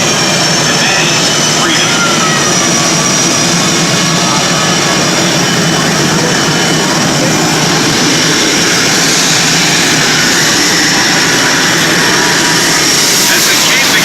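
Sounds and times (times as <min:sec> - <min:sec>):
jet engine noise: 0:00.0 - 0:14.0.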